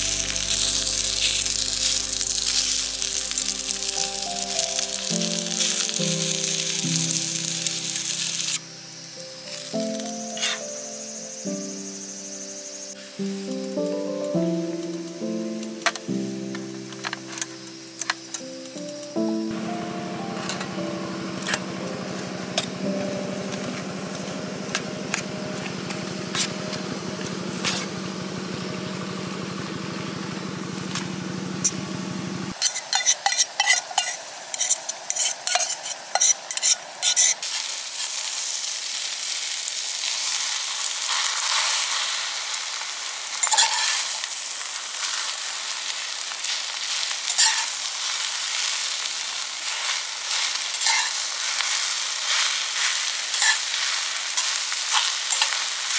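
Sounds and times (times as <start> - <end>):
food sizzling in a pan: 0.0 - 28.4, 31.0 - 55.9
steady low hum: 19.5 - 32.6
utensils clicking and clattering: 43.4 - 44.2, 49.7 - 55.9.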